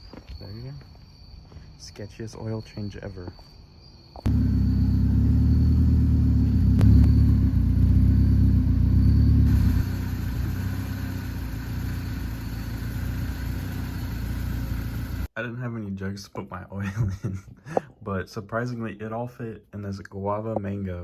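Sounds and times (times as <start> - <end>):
car engine rumbling: 4.2 - 15.3.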